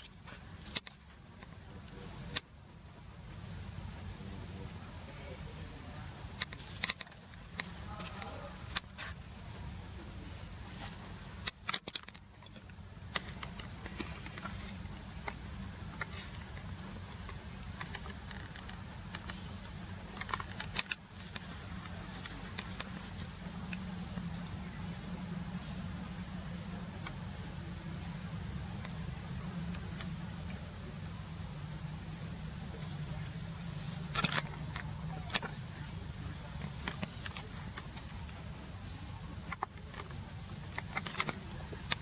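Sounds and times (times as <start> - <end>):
high insect chorus: 0.0 - 42.0
sharp clicks and knocks: 17.3 - 24.4, 39.5 - 42.0.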